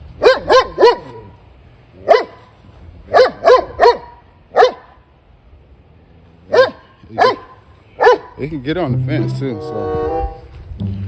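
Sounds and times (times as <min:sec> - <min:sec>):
large dog barking: 0:00.2 - 0:01.3, 0:02.0 - 0:02.4, 0:03.1 - 0:04.9, 0:06.5 - 0:08.4.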